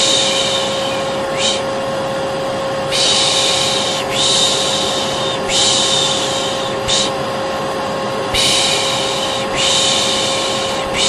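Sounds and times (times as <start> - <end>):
person shushing: 0.0 - 1.7, 2.9 - 7.2, 8.3 - 11.0
vacuum cleaner motor humming: 0.0 - 11.0.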